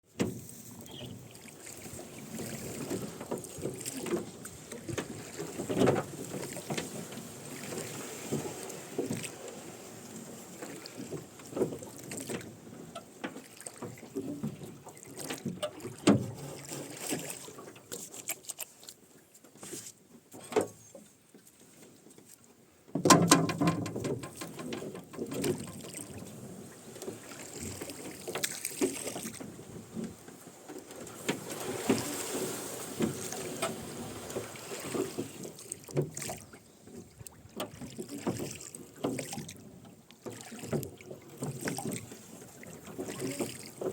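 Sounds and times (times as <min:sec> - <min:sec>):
oar blades splashing in water: 0:00.1 - 0:43.9
oarlocks creaking and knocking: 0:23.0 - 0:26.0.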